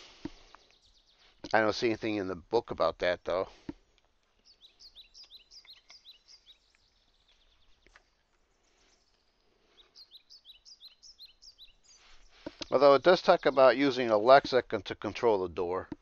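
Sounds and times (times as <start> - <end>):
bird chirping: 0.4 - 2.3, 4.2 - 14.6.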